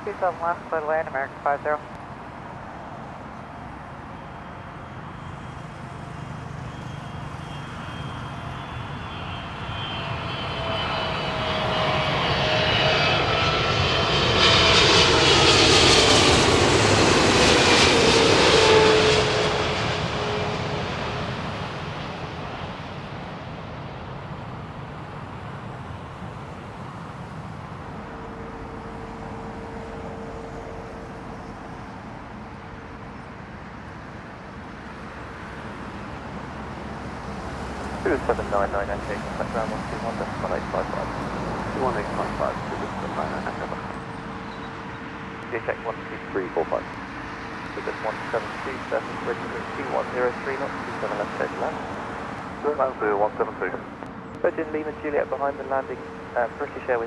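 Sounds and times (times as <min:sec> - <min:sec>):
jet airliner flying past: 0:00.0 - 0:57.0.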